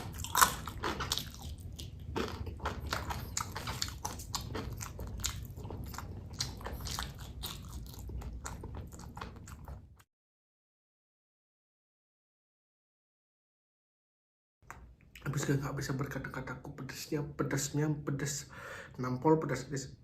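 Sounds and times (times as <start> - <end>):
crunching and chewing chips: 0.0 - 10.0.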